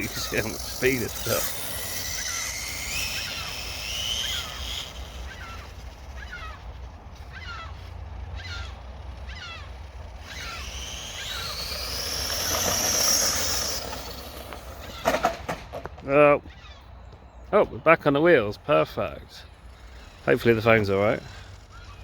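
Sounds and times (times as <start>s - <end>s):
electric motor whining: 0.0s - 15.2s, 19.0s - 22.0s.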